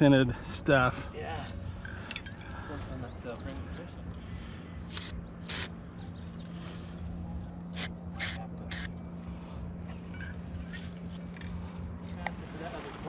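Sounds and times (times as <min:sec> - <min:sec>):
spray bottle hissing spritzes: 0:04.8 - 0:05.7, 0:07.8 - 0:08.9
small bird chirping: 0:04.8 - 0:06.5, 0:07.8 - 0:08.9.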